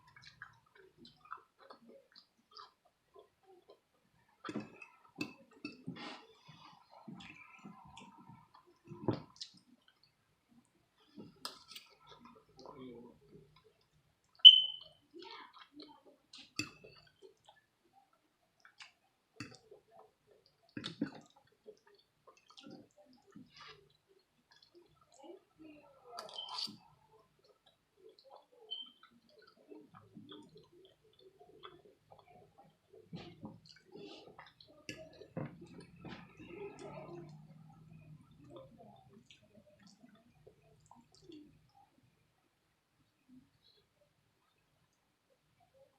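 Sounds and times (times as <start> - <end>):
chewing and wet mouth sounds: 0.0 - 45.9
short high-pitched squeak: 14.4 - 14.8.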